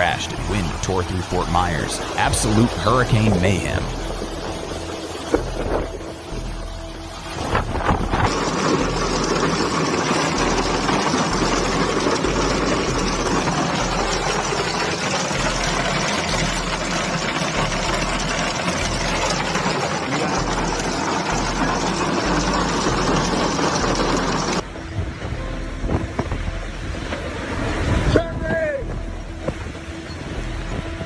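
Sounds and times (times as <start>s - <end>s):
hurricane wind rushing: 19.4s - 31.0s.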